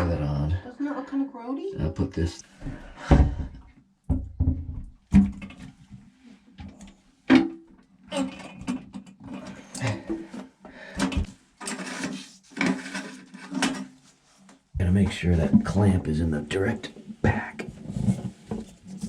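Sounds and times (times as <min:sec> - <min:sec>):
toilet parts knocking and clattering: 0:02.6 - 0:05.8, 0:07.3 - 0:10.4.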